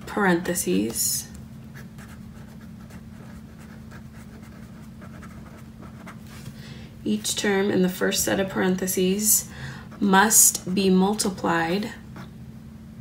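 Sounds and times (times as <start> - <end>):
steady low hum: 0.0 - 13.0
pen writing on paper: 2.0 - 6.2.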